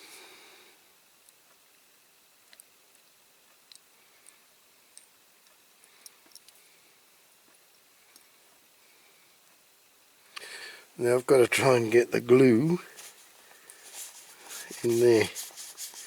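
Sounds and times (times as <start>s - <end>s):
small parts clicking and tapping: 2.4s - 6.7s.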